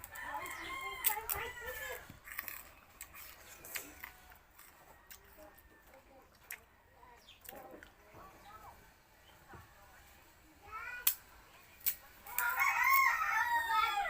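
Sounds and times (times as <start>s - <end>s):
sugarcane crunching: 0.0s - 6.7s, 11.0s - 13.6s.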